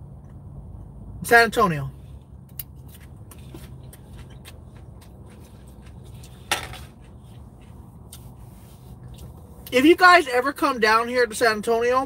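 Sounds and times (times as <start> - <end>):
low hum inside car: 0.0 - 12.0
person chewing salad: 2.6 - 9.7.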